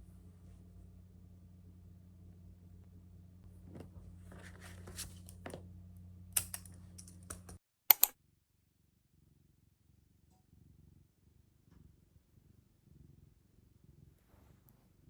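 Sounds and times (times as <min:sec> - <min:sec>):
steady low hum: 0:00.0 - 0:07.6
keyboard key clicks: 0:06.4 - 0:08.2
loud sharp clicks: 0:06.4 - 0:08.2.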